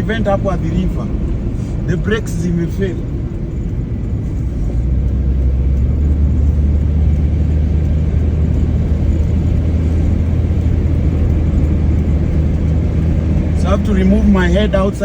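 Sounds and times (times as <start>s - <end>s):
car engine and road drone: 0.0s - 15.0s.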